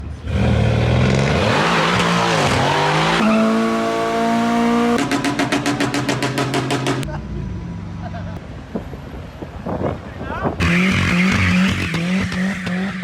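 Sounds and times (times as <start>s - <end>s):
car engine revving hard: 0.3s - 7.0s.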